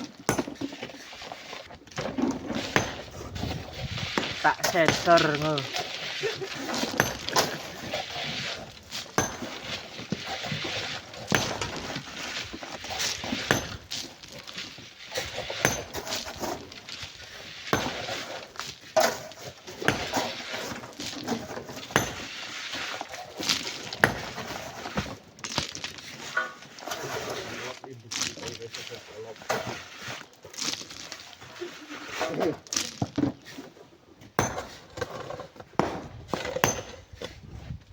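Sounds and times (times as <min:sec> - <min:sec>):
gritty scraping of sand: 0:00.0 - 0:37.9
hand tools knocking on stone: 0:00.3 - 0:00.6, 0:22.0 - 0:22.3.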